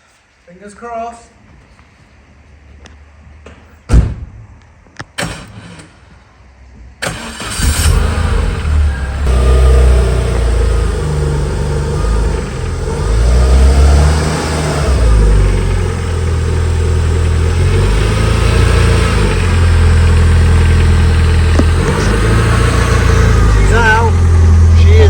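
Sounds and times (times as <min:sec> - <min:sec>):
car engine revving: 0:07.0 - 0:25.0.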